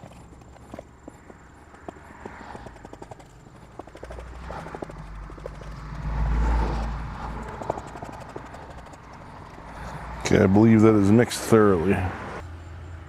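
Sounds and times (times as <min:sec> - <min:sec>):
stick stirring epoxy clicks and scrapes: 0:00.0 - 0:05.8.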